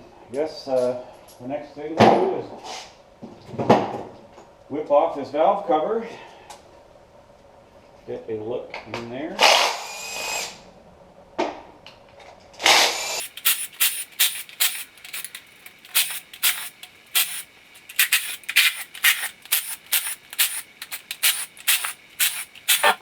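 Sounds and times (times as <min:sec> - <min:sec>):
power tool burst: 0:13.2 - 0:23.0
quick short tool strokes: 0:13.2 - 0:23.0.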